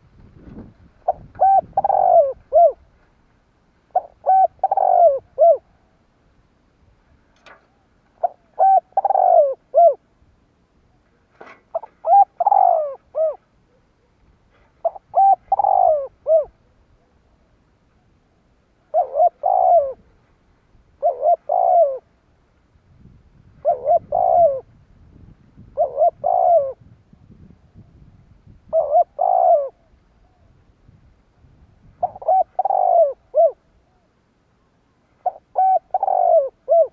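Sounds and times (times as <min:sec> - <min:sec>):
dove cooing: 0:00.4 - 0:02.9, 0:03.9 - 0:05.8, 0:07.4 - 0:10.0, 0:11.4 - 0:17.4, 0:18.8 - 0:20.2, 0:21.0 - 0:22.2, 0:23.5 - 0:26.9, 0:28.7 - 0:30.6, 0:31.9 - 0:34.1, 0:35.2 - 0:36.9.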